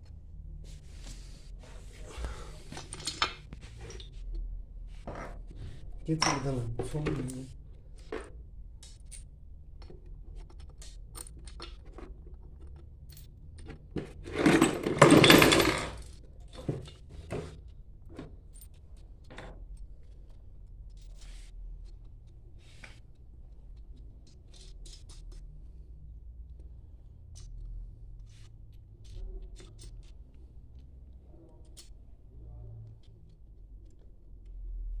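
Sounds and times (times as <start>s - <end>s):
faint low hum: 0.0s - 35.0s
metal tools clinking and knocking: 2.7s - 4.2s, 6.1s - 7.5s, 13.6s - 17.6s.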